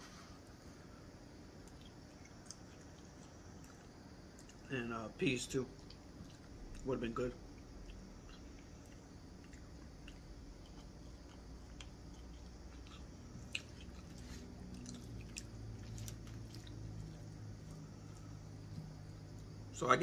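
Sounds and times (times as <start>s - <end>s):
person chewing food: 1.6s - 4.7s, 5.7s - 19.6s.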